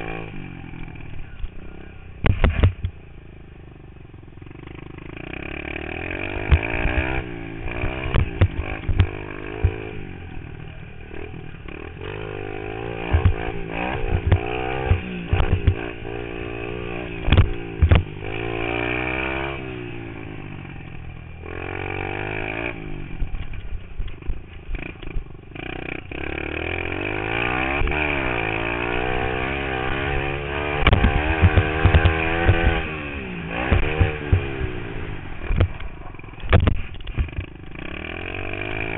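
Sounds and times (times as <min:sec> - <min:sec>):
pit bike engine revving: 0:00.0 - 0:38.9
sharp knocks and bumps: 0:06.4 - 0:07.2, 0:07.8 - 0:09.8, 0:13.0 - 0:15.9, 0:17.2 - 0:18.1, 0:30.7 - 0:32.9, 0:33.6 - 0:34.6, 0:35.5 - 0:37.5.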